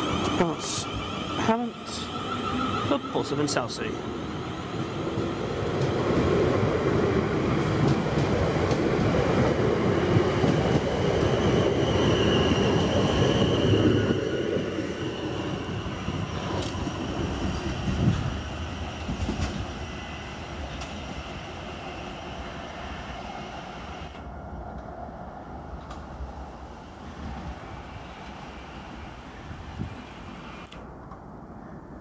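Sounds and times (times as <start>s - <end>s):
high squeal: 0.0s - 3.7s, 11.3s - 17.5s
train wheels rumbling on rails: 0.0s - 31.2s.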